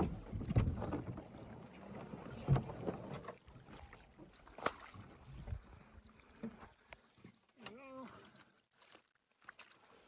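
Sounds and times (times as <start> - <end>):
canoe hull scraping and knocking: 0.0 - 5.6.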